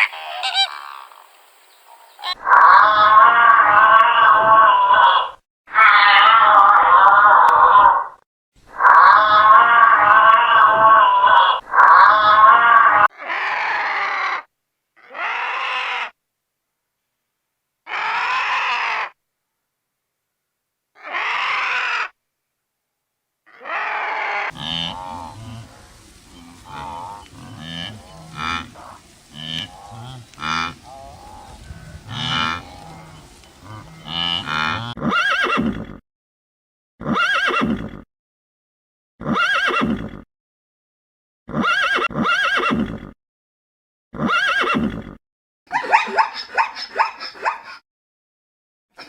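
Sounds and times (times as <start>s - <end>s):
short animal call: 0.0s - 1.2s
farm animals calling: 0.0s - 8.0s, 23.6s - 35.8s, 45.7s - 47.8s.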